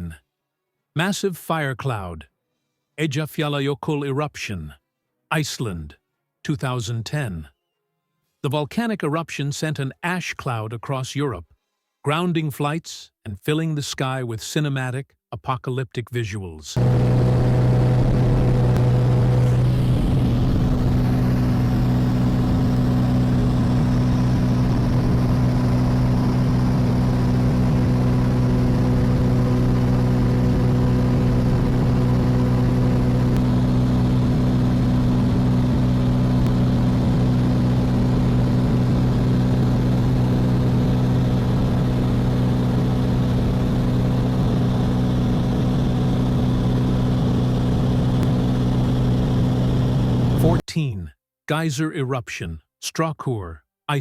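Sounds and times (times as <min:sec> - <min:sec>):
engine drone: 0:16.8 - 0:50.6.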